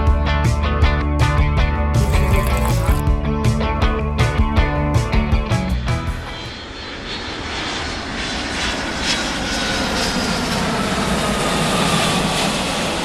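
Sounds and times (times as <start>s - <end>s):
airplane engines running: 3.0s - 13.0s.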